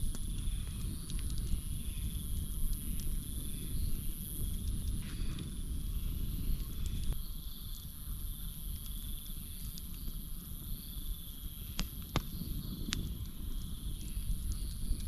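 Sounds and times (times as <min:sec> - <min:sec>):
campfire crackling: 0:00.0 - 0:15.0
crickets chirping: 0:00.0 - 0:15.0.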